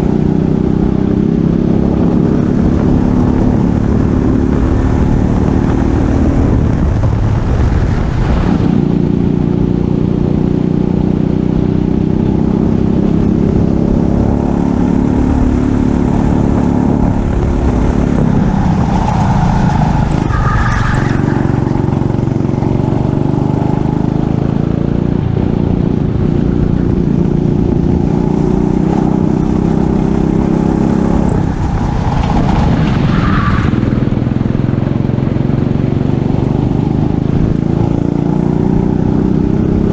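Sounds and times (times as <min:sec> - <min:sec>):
kart engine revving: 0:11.3 - 0:25.1, 0:25.8 - 0:39.9.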